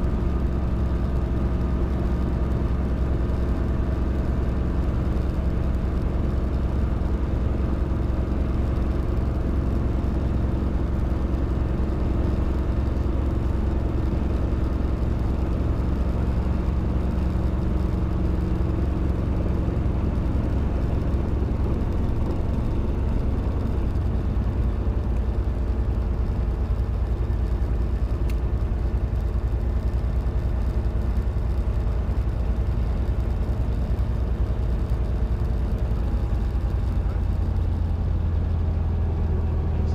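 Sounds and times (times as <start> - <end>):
helicopter engine and rotors droning: 0.0 - 30.7.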